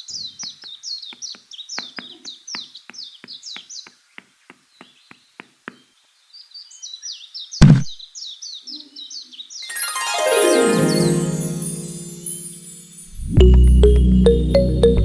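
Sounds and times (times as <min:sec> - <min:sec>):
bird chirping rapidly: 0:00.0 - 0:06.1
loud thump: 0:07.6 - 0:08.0.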